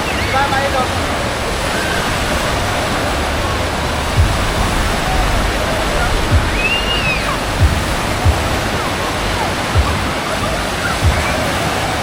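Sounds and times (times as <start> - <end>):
water rushing: 0.0 - 12.0
low thumps: 0.7 - 11.5.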